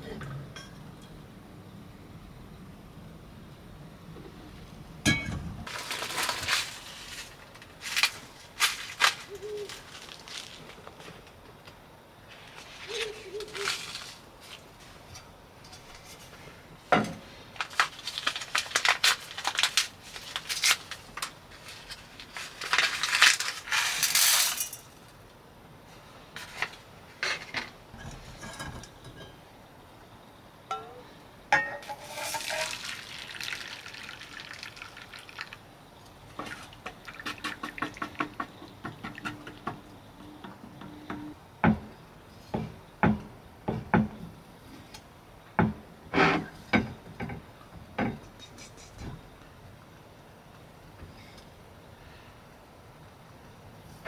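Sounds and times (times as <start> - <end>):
dishes clinking and scraping: 0.0 - 1.2, 5.1 - 5.5, 27.2 - 29.5, 30.7 - 33.3
water sounds: 32.3 - 35.7.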